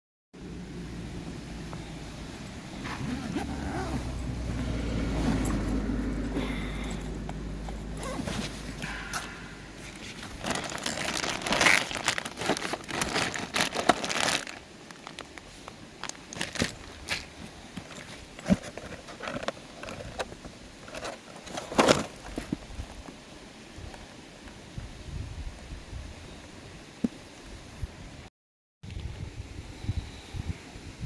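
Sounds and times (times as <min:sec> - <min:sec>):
low steady rumble: 0:00.4 - 0:14.1
crinkling and rustling: 0:02.8 - 0:23.2.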